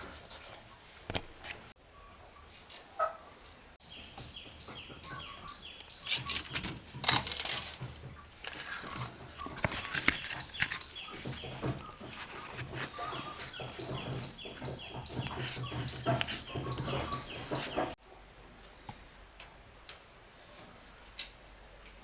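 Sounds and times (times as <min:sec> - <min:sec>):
birds chirping: 0:01.8 - 0:18.0
knocks and taps: 0:09.2 - 0:18.0.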